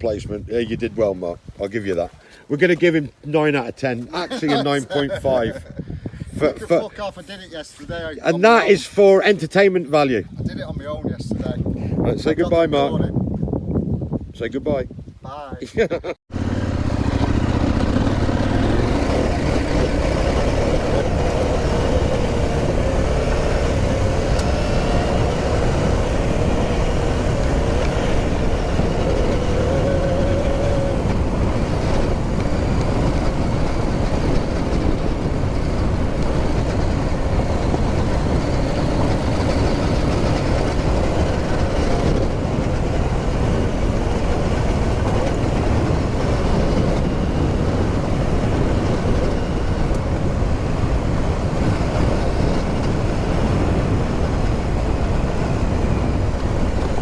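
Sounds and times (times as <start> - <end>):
wind rumble on microphone: 0.0 - 57.0
motorcycle engine running: 16.3 - 57.0.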